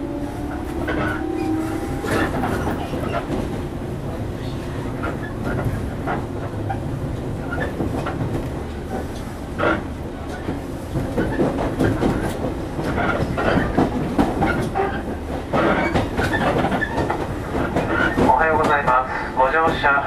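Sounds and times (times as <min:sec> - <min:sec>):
train rumbling: 0:00.0 - 0:20.0
wheels clattering over track: 0:04.4 - 0:19.0.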